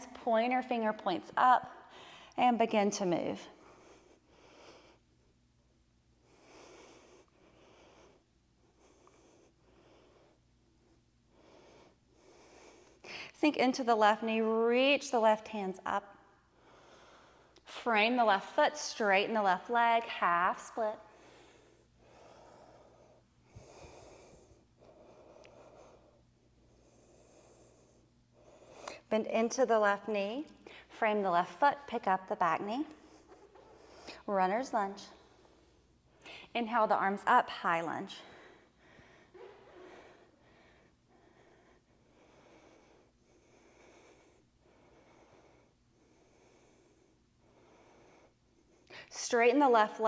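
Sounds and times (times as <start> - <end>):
woman breathing slowly: 1.6 - 2.4, 3.4 - 13.4, 16.1 - 17.9, 20.6 - 29.1, 30.4 - 36.6, 37.2 - 49.2.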